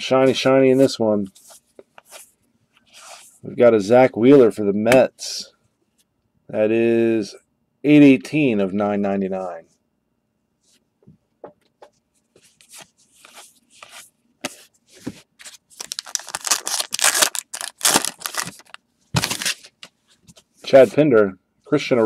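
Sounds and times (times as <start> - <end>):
card pack clicks and rustles: 15.4 - 19.8
wrapper crinkling and tearing: 15.8 - 19.7.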